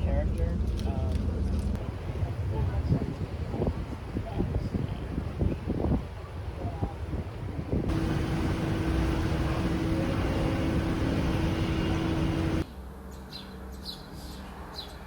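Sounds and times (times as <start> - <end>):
vehicle running hum: 7.9 - 12.7.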